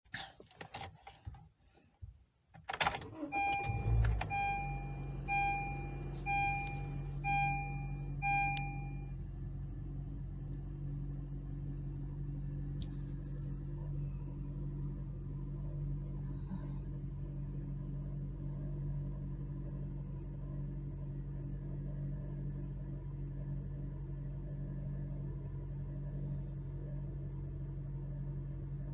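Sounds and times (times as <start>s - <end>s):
car engine starting and idling: 2.6s - 28.9s
car keys jingling: 2.7s - 9.0s
car warning chime beeping: 3.0s - 9.2s.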